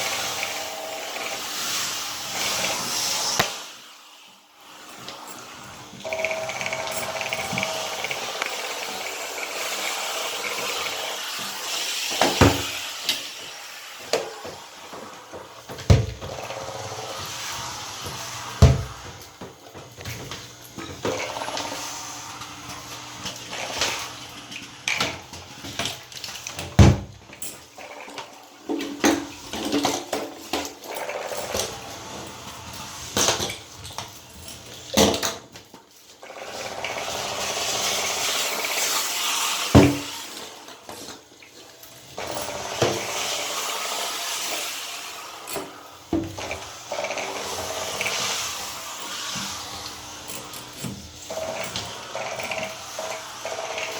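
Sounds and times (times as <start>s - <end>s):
steam cleaner hissing: 0.0s - 26.9s, 28.3s - 34.7s, 36.2s - 53.9s
tool knocking against tub: 18.6s - 19.0s.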